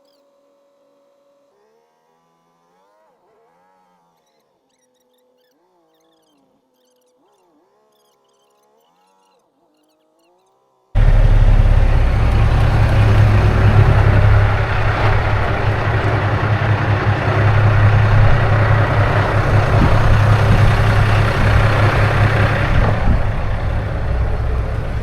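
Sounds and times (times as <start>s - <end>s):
road noise: 11.0s - 25.0s
truck diesel engine droning: 11.0s - 25.0s.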